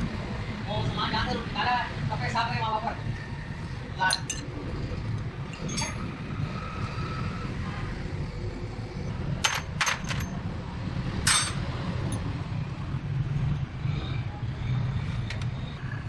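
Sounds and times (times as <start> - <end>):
metal tools clanging: 4.0 - 4.5, 5.5 - 6.1, 9.4 - 10.3, 11.3 - 12.3.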